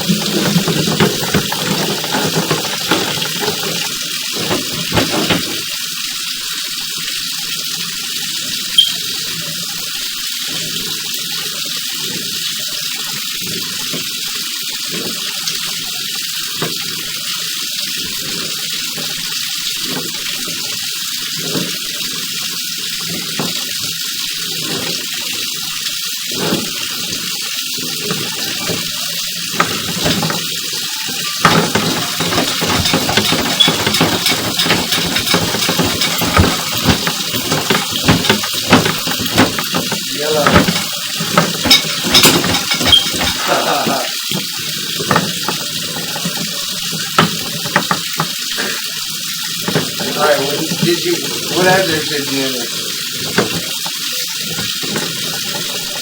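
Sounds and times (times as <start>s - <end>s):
water rushing: 0.0s - 6.1s, 24.4s - 56.0s.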